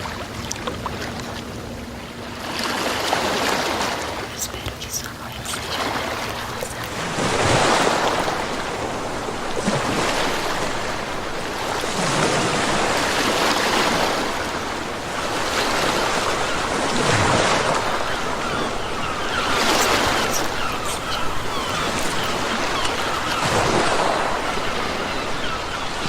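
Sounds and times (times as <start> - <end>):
sea waves breaking: 0.0 - 26.0.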